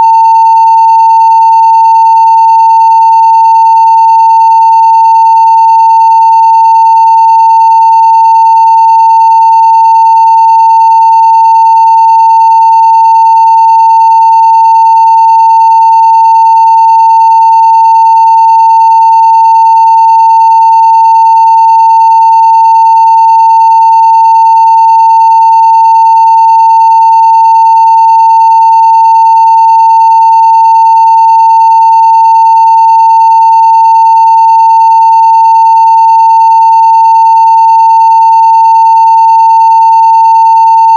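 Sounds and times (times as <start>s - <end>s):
sine-wave test tone: 0.0s - 40.9s.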